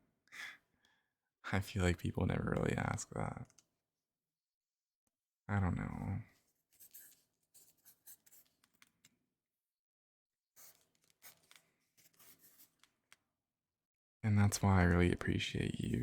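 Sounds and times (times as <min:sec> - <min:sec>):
pen writing on paper: 0:06.8 - 0:08.9, 0:10.6 - 0:12.9.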